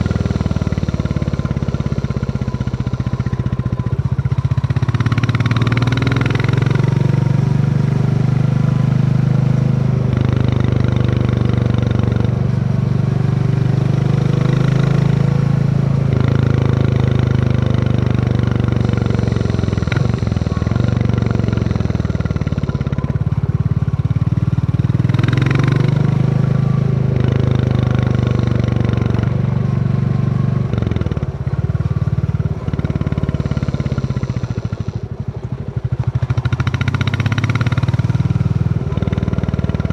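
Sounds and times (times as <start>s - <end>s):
motorcycle engine thumping: 14.4s - 26.4s.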